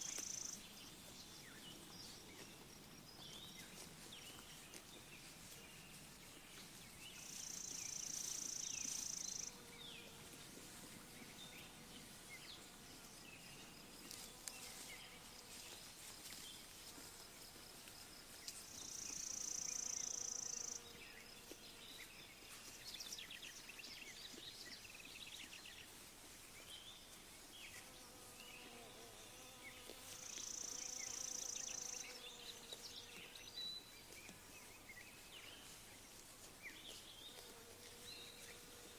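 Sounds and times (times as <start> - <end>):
high-pitched insect buzz: 0.0 - 0.6, 18.8 - 21.8, 27.7 - 33.5
small birds chirping: 0.0 - 38.9.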